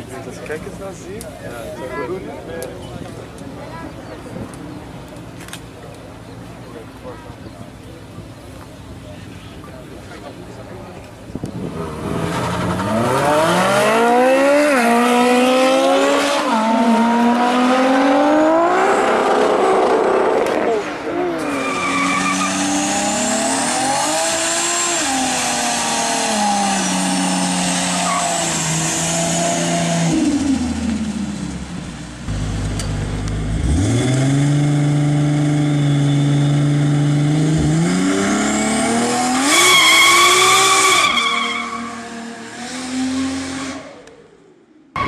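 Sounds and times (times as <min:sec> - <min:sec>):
car engine revving: 0:11.5 - 0:44.2
tire squeal: 0:21.4 - 0:23.2, 0:25.0 - 0:28.9, 0:39.4 - 0:42.2, 0:43.2 - 0:44.0.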